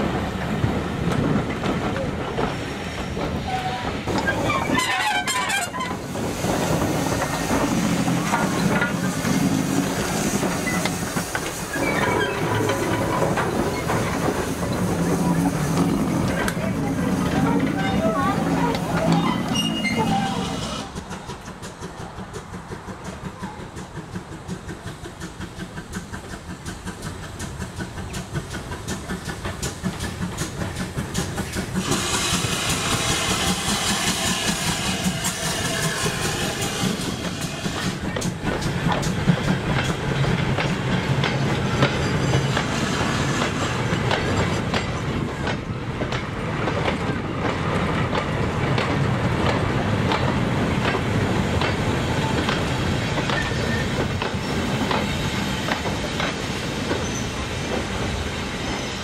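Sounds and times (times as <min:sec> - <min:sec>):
steam locomotive chuffing: 0:00.0 - 0:59.0
steam hissing: 0:05.8 - 0:59.0
wagon wheels clickety-clack: 0:36.8 - 0:58.8.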